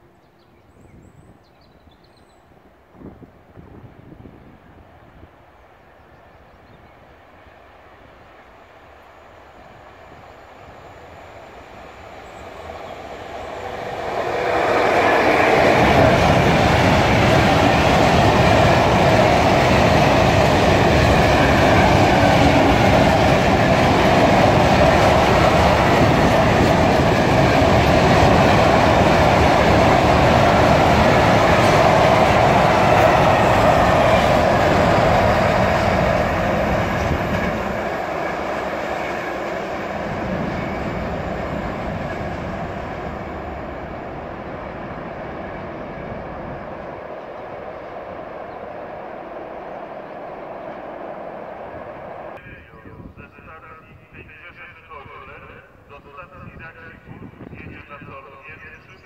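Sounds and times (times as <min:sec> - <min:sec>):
freight train wheels rolling on rails: 0:07.4 - 0:52.4.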